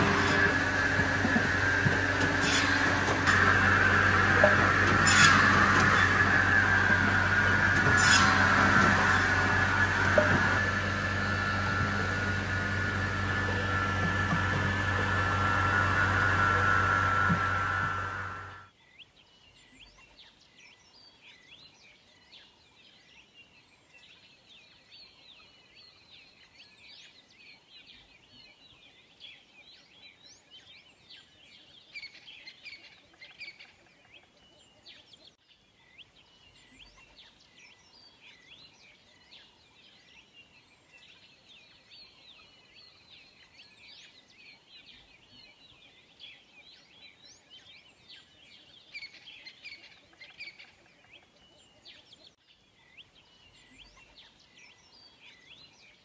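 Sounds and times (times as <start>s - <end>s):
small birds chirping: 18.7s - 56.0s.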